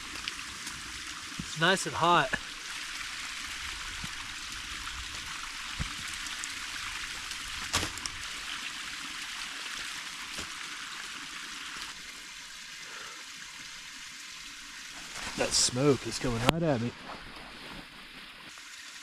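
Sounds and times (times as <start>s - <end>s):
fire pops and crackles: 0.0s - 9.1s, 9.7s - 11.9s
campfire hissing: 0.0s - 19.0s.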